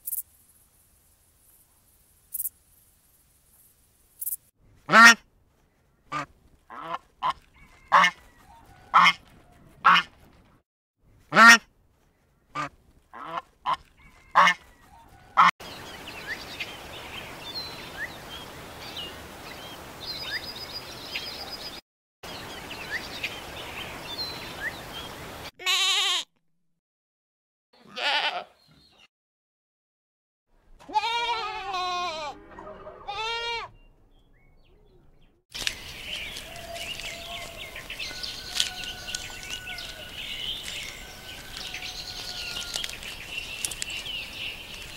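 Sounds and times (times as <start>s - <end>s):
background hiss: 0.0s - 4.5s
goose honking: 4.9s - 5.2s, 6.1s - 8.2s, 8.9s - 9.2s, 12.6s - 14.6s
goat bleating: 25.6s - 26.3s, 27.8s - 28.6s, 30.8s - 33.7s
bird chirps: 33.7s - 44.9s.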